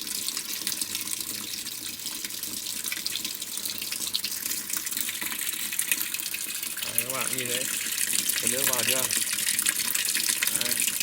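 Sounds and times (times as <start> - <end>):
water running into washing machine: 0.0 - 11.0.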